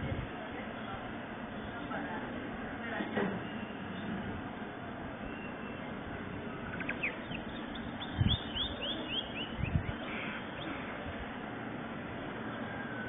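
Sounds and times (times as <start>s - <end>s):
steady background noise: 0.0s - 13.0s
small bird chirping: 5.3s - 10.9s.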